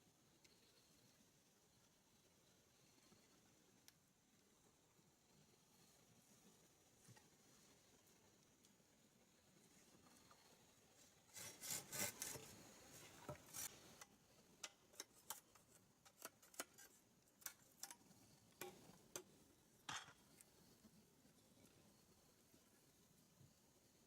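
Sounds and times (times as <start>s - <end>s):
faint rubbing and scraping: 9.3s - 14.1s
light clicks and snaps: 14.0s - 19.3s.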